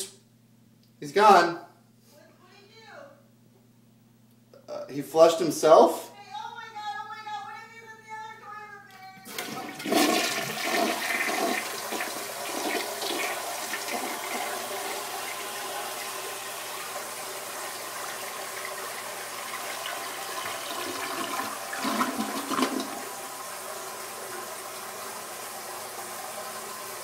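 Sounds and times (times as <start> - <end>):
toilet flushing: 9.2 - 27.0.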